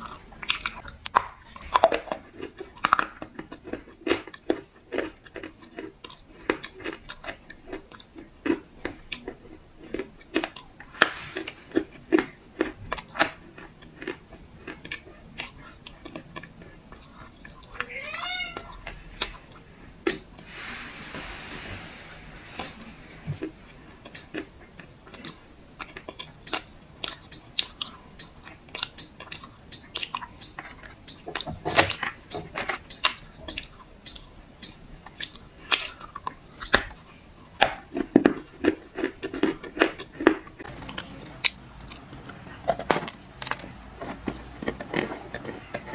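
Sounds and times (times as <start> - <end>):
crunching and chewing clay: 0.0 - 20.5, 22.6 - 45.9
cat meowing: 17.7 - 19.0.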